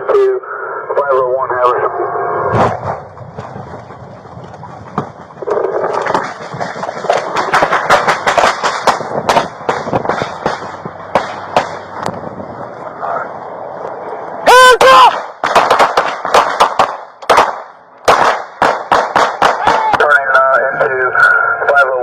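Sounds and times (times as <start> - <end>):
rapid gunshots: 5.4 - 11.9, 15.1 - 20.0.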